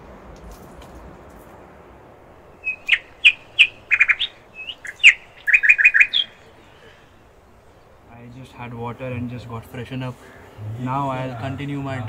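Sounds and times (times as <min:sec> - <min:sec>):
bird chirping: 0:02.3 - 0:10.6.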